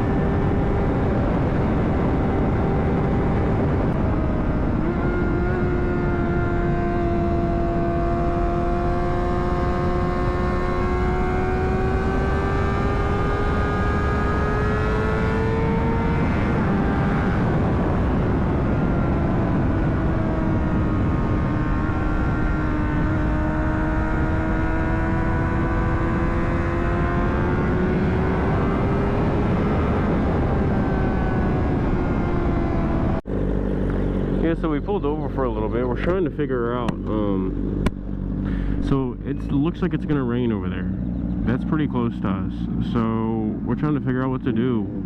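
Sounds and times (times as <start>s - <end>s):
wind rush on microphone: 0.0s - 34.8s
motorcycle engine accelerating: 0.0s - 45.0s.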